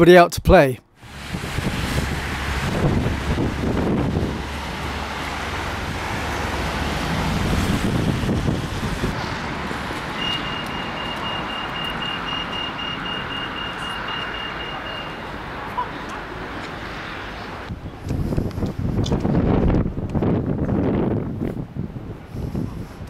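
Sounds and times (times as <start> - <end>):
wind: 0.0 - 23.0
road traffic: 0.8 - 23.0
rapid high electronic beeping: 10.2 - 15.2.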